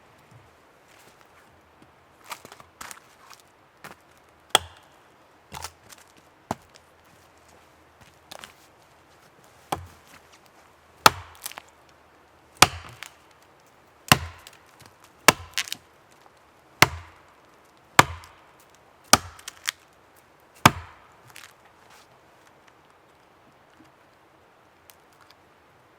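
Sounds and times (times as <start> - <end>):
wood chopping blows: 4.6 - 5.0, 9.7 - 10.2, 11.0 - 11.6, 12.6 - 13.2, 14.1 - 14.6, 15.3 - 15.8, 16.8 - 17.2, 18.0 - 18.4, 19.1 - 19.8, 20.6 - 21.4.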